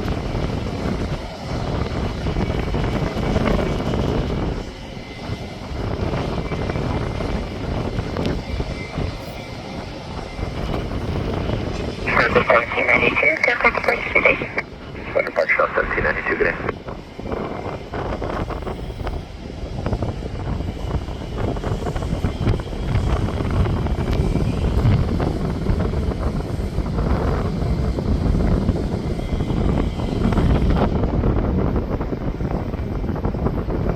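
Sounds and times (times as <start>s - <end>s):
jet engines rumbling: 0.0s - 33.9s
wind buffeting microphone: 0.0s - 33.9s.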